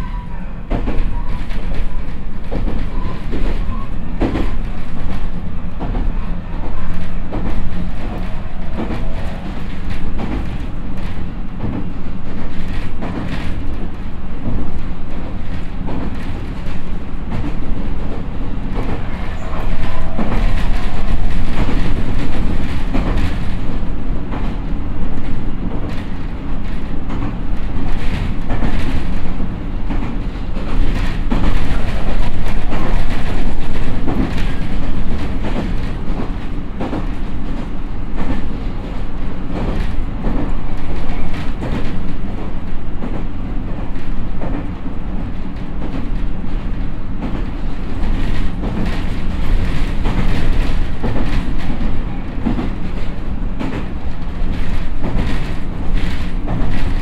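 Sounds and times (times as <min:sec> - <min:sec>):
train interior rumble: 0:00.0 - 0:57.0
wheels clicking over rail joints: 0:39.5 - 0:57.0.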